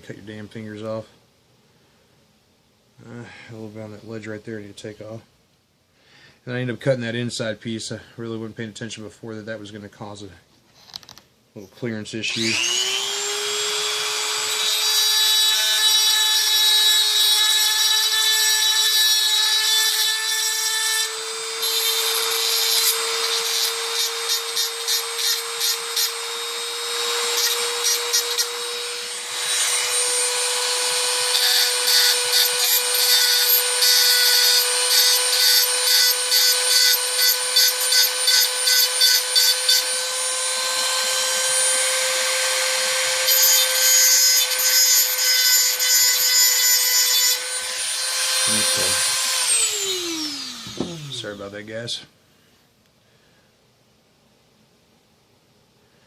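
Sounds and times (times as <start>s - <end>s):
rotary tool grinding metal: 12.3s - 51.4s.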